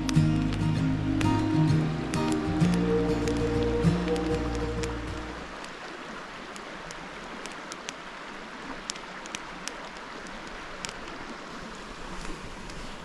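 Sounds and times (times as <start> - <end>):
music: 0.0 - 5.4
campfire crackling and popping: 0.0 - 5.7
stream rushing: 0.0 - 13.0.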